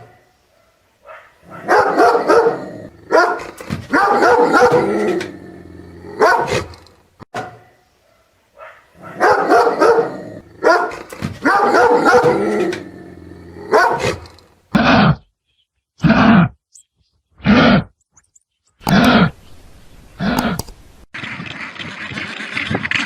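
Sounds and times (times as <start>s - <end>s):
dog barking: 0.0s - 4.9s, 6.2s - 6.7s, 7.4s - 12.4s, 13.6s - 14.2s.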